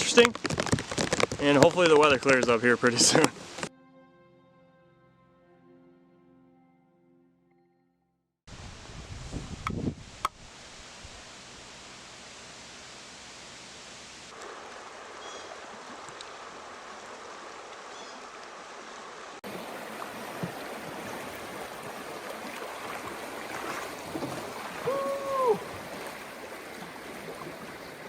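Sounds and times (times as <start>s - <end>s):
river water rushing: 10.6s - 28.0s.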